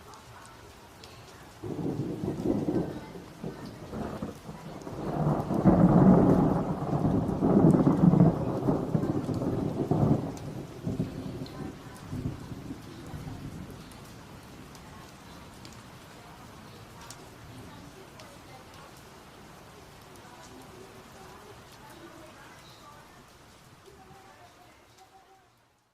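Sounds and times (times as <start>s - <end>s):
steady rain: 0.0s - 25.9s
thunder rumbling: 1.5s - 18.0s.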